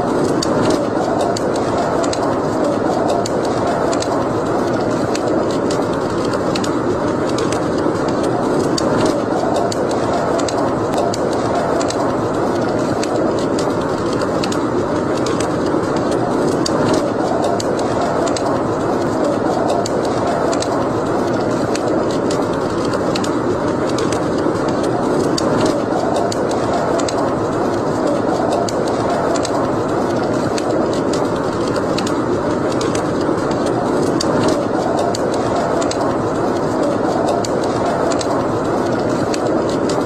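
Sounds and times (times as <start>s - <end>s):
fire crackles and pops: 0.0s - 40.0s
wood fire hissing: 0.0s - 40.0s.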